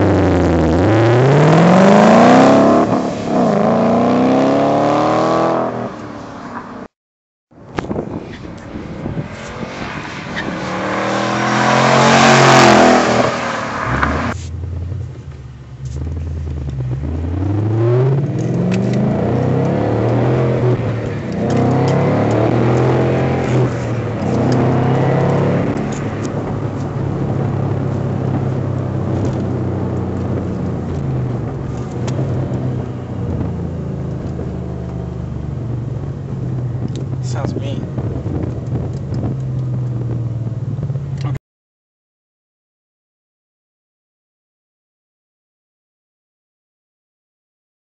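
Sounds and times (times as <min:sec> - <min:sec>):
car engine accelerating past: 0:00.0 - 0:06.8, 0:08.3 - 0:15.0, 0:15.8 - 0:36.5.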